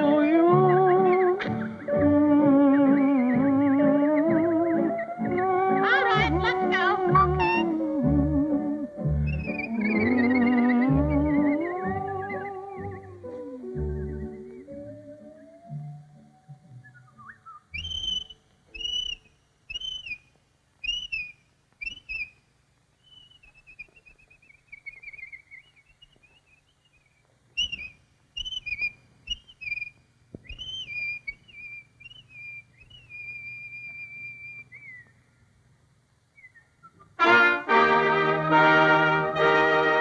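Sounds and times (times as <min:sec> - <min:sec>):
cartoon bird whistling: 0:00.0 - 0:15.9, 0:16.8 - 0:20.2, 0:20.8 - 0:22.3, 0:27.6 - 0:29.9, 0:30.5 - 0:35.1.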